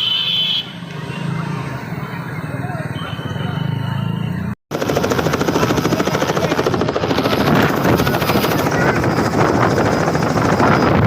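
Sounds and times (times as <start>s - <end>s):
helicopter rotor chopping: 4.7s - 11.0s.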